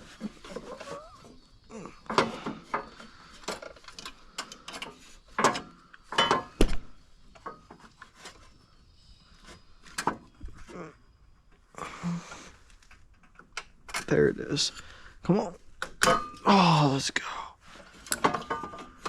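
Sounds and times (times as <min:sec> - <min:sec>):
metal clinks and knocks: 0:18.2 - 0:19.0.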